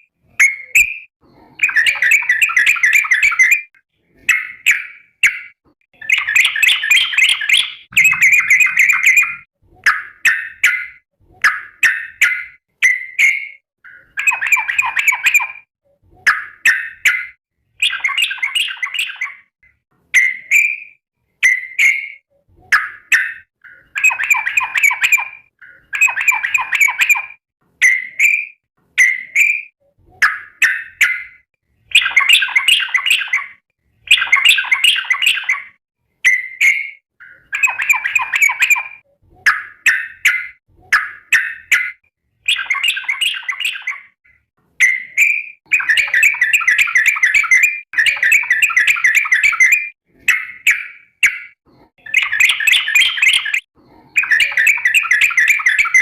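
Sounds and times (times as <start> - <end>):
bulbul calling: 0.4 - 15.6, 44.8 - 56.0.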